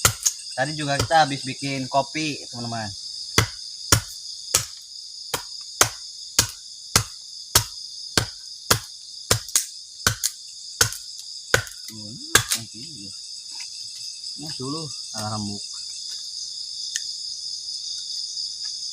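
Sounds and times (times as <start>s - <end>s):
crickets chirping: 0.0s - 18.9s.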